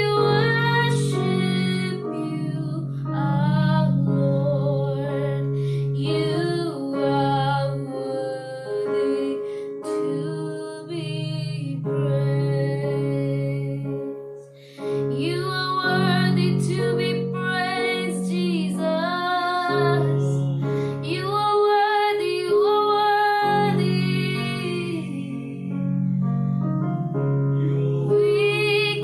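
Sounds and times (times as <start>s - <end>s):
woman singing: 0.0s - 25.8s, 28.1s - 29.0s
instrumental accompaniment: 14.0s - 29.0s.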